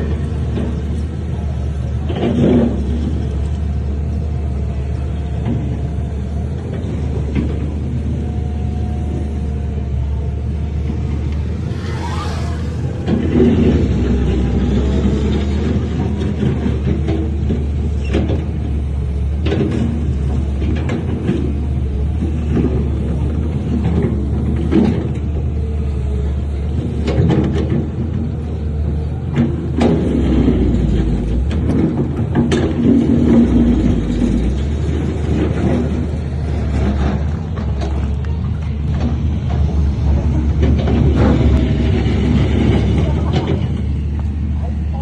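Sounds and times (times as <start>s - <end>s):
diesel machinery engine rumble: 0.0s - 45.0s
brief rising and falling whine: 11.0s - 14.4s.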